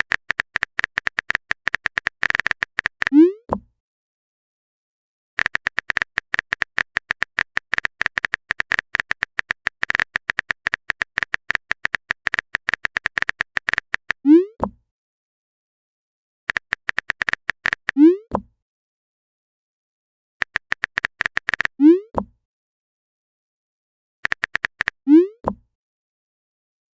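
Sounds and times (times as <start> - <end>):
phone keyboard typing clicks: 0.0 - 3.6, 5.4 - 14.2, 16.5 - 18.4, 20.4 - 21.8, 24.2 - 25.0.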